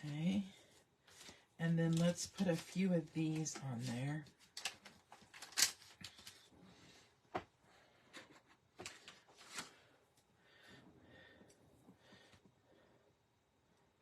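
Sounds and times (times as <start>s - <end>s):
paper rustling: 1.0s - 6.5s, 8.1s - 9.9s.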